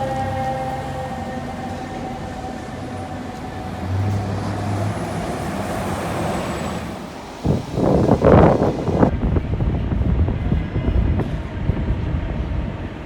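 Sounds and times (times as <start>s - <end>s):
brief low drone: 0.0s - 6.1s
fire truck siren: 0.0s - 9.1s
street traffic: 0.0s - 12.7s
heavy truck rumble: 0.0s - 12.8s.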